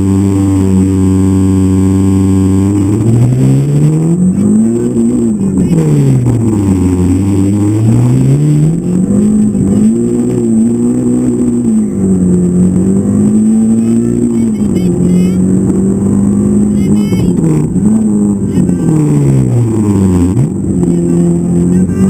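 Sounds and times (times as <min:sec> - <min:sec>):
rally car engine accelerating: 0:00.0 - 0:22.0.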